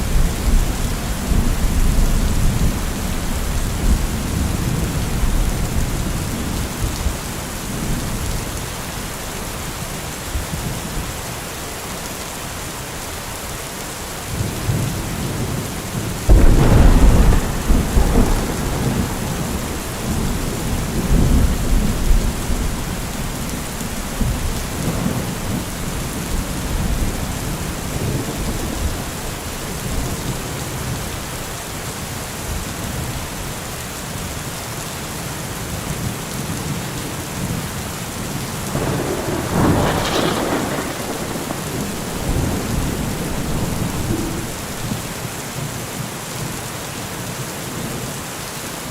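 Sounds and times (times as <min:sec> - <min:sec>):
steady rain falling: 0:00.0 - 0:48.9
thunder rumbling and clapping: 0:16.2 - 0:30.9, 0:38.7 - 0:45.2.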